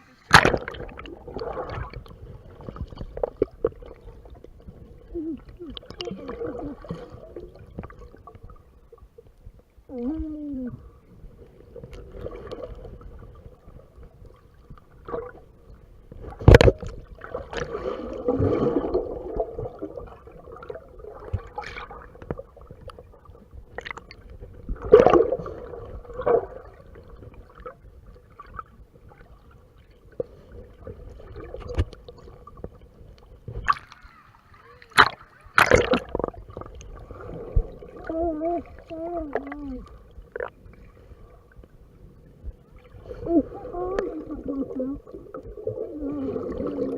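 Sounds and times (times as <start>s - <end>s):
muffled water sloshing and gurgling: 0.0s - 46.9s
loud muffled splashes: 0.3s - 2.0s, 34.9s - 38.0s.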